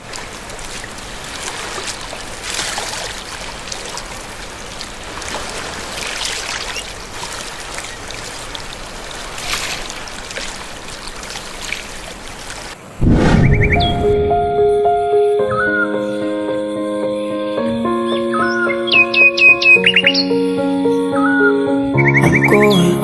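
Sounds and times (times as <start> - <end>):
stream water flowing: 0.0 - 12.9.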